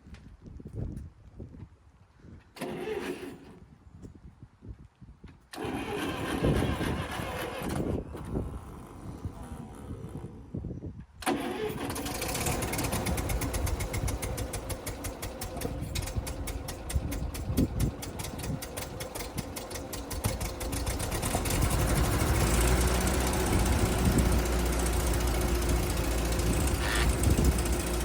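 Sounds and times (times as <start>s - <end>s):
tractor engine starting and running: 2.6s - 3.6s, 5.5s - 9.3s, 11.2s - 28.0s.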